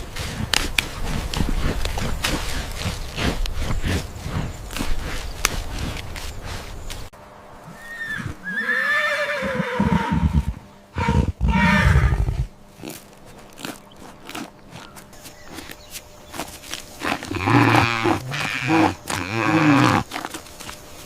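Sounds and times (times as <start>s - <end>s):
horse whinnying: 7.8s - 12.4s.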